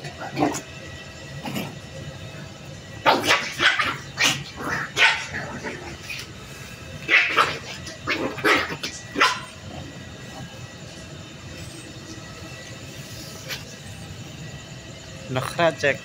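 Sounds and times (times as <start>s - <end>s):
puppies barking: 3.0s - 10.6s.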